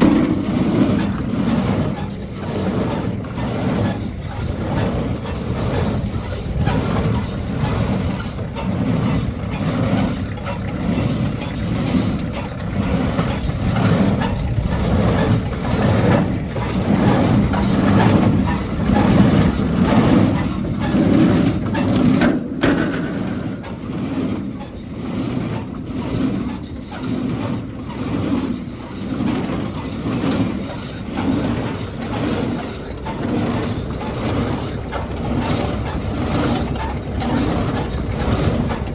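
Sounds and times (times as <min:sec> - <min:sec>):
hay baler rumbling: 0:00.0 - 0:38.9.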